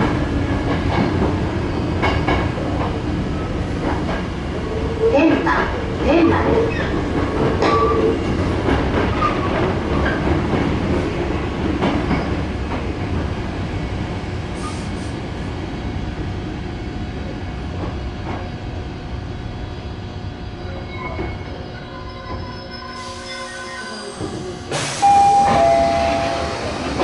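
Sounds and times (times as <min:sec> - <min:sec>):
electric train rumbling on rails: 0:00.0 - 0:27.0
train wheel squeals: 0:20.6 - 0:27.0.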